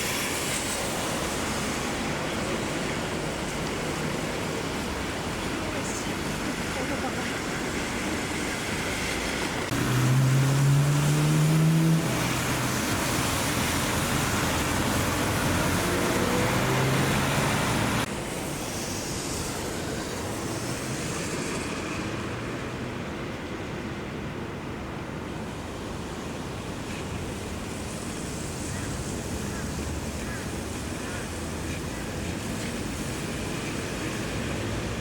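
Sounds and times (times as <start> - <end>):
tyres hissing on wet road: 0.0 - 35.0
vehicle engine hum: 0.2 - 18.5.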